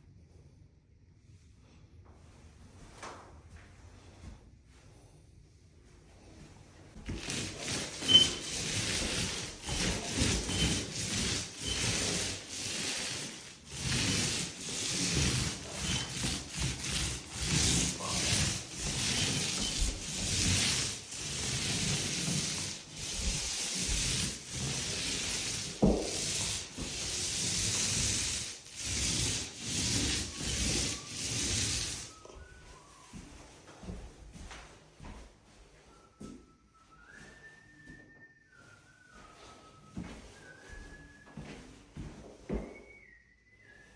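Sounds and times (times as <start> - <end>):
sandpaper rubbing on drywall: 7.0 - 34.0.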